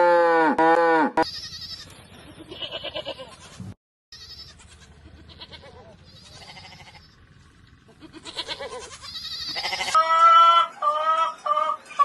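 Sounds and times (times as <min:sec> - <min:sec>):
goats or sheep bleating: 0:00.0 - 0:03.6, 0:04.2 - 0:07.2, 0:07.9 - 0:11.4.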